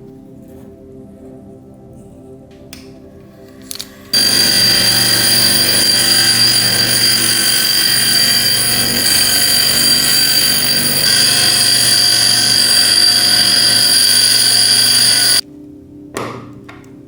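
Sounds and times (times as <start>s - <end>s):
loud hiss: 4.2s - 15.4s
power tool whining: 4.2s - 15.4s.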